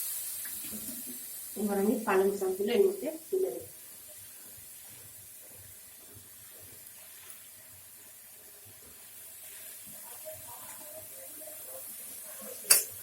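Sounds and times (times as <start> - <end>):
vegetables hissing in a pan: 0.0 - 13.0.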